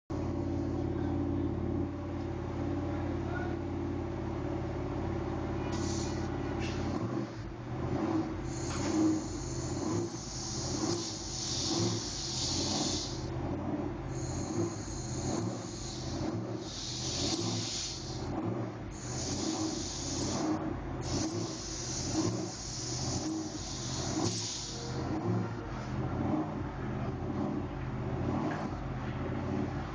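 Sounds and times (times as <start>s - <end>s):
car engine running: 0.1s - 29.9s
hiss: 5.8s - 6.3s, 8.5s - 13.3s, 14.1s - 18.3s, 18.9s - 25.1s.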